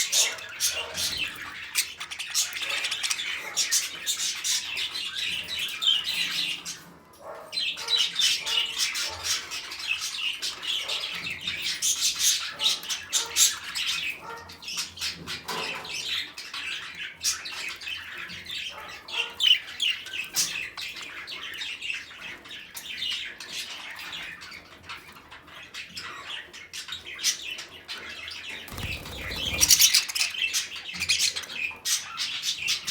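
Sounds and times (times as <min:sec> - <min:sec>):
parrots chattering: 0:00.0 - 0:04.7, 0:28.6 - 0:32.4.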